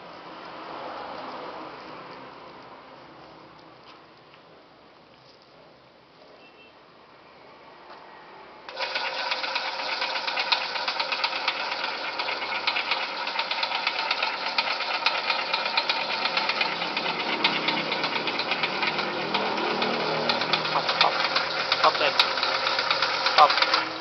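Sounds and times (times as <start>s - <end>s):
winding machine rattling: 8.7s - 24.0s.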